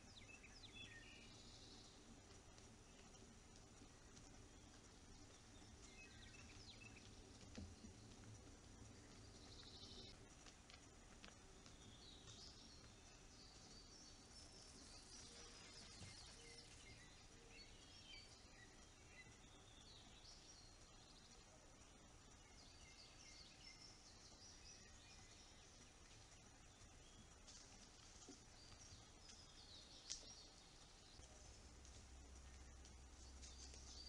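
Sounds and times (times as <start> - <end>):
low background hiss: 0.0 - 34.0
birds chirping and trilling: 11.6 - 27.6.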